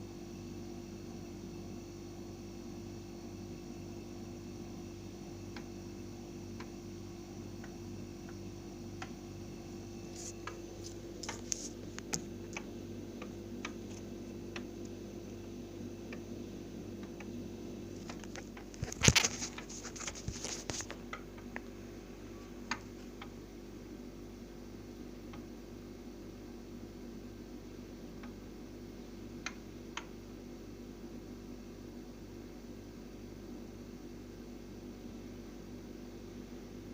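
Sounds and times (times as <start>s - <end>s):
refrigerator humming: 0.0s - 36.9s
refrigerator clicks and ticks: 12.0s - 15.5s.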